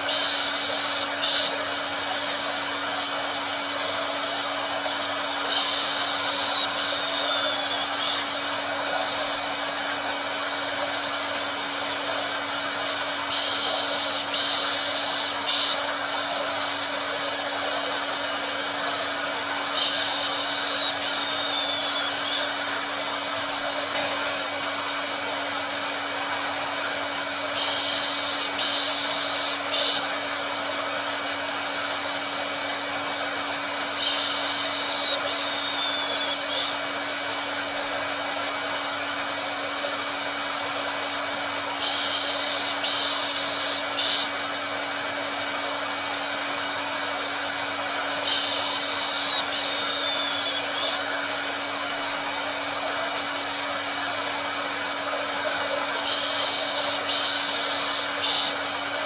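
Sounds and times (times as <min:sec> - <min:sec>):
higher hissing surges: 0:00.0 - 0:40.1, 0:40.8 - 0:59.0
hair dryer running: 0:00.0 - 0:59.0.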